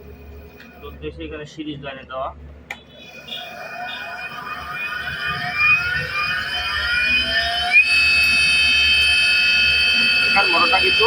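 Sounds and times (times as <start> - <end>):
electric motor whine: 2.9 - 11.0.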